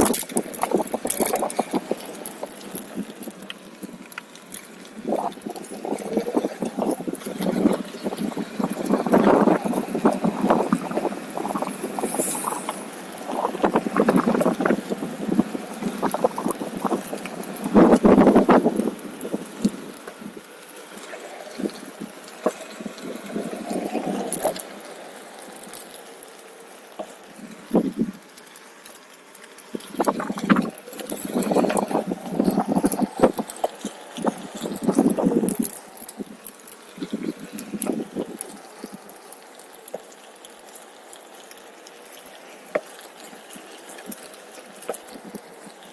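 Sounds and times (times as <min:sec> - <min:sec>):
wheel crunching and rattling on trail: 0:00.0 - 0:45.9
wind on microphone: 0:05.0 - 0:20.5, 0:21.5 - 0:24.6, 0:27.4 - 0:28.2, 0:29.7 - 0:36.4, 0:37.0 - 0:39.0.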